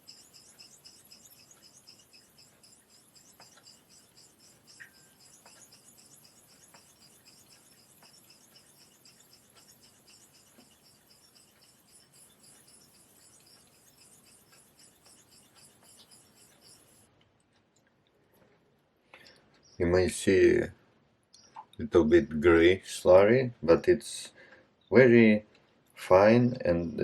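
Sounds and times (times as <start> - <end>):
razor scraping on a whetstone: 5.3 - 17.0.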